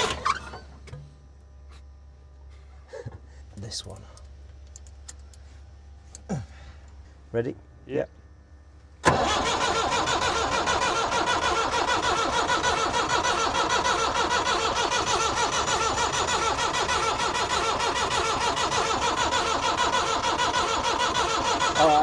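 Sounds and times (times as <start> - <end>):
diesel engine starting and running: 0.0 - 0.9, 9.0 - 22.0.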